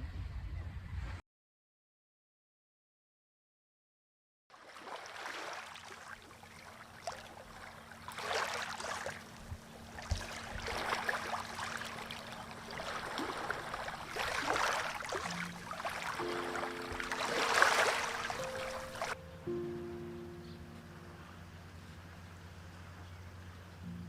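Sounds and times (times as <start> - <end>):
small waves washing onto shore: 4.5 - 19.2.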